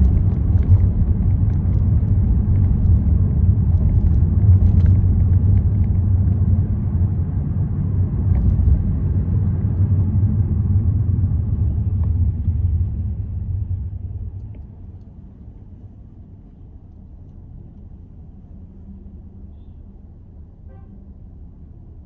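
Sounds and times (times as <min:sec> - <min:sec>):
car tyre and engine rumble: 0:00.0 - 0:22.0.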